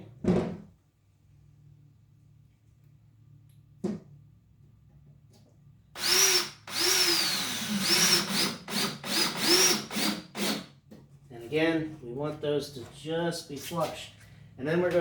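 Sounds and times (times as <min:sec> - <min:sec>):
cordless drill driving screws: 0:06.0 - 0:10.6.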